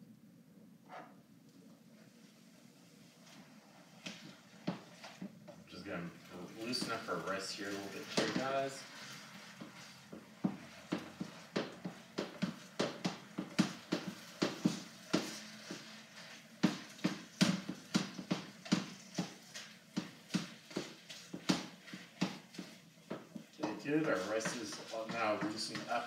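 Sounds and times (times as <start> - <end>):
spatula scraping a wok: 6.3 - 23.0.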